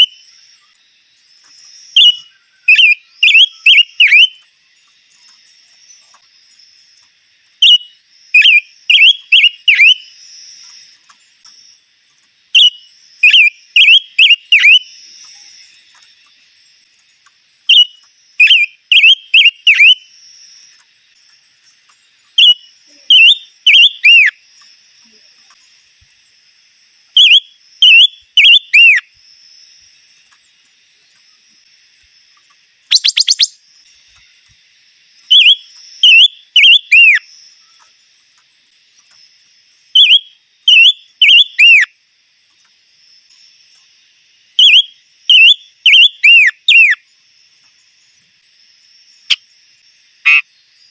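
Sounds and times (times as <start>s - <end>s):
songbird whistling: 1.9s - 4.5s, 7.6s - 10.1s, 12.6s - 15.6s, 17.6s - 20.0s, 22.4s - 24.4s, 27.2s - 29.1s, 32.9s - 33.6s, 35.2s - 37.3s, 40.0s - 41.9s, 44.6s - 47.0s.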